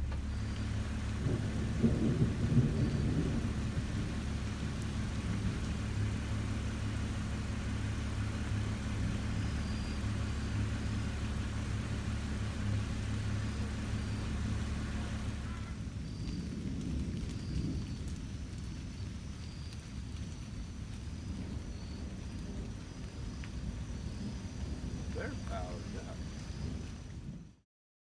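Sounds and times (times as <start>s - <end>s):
car driving drone: 0.0s - 16.0s
road and wind hiss: 0.0s - 27.6s.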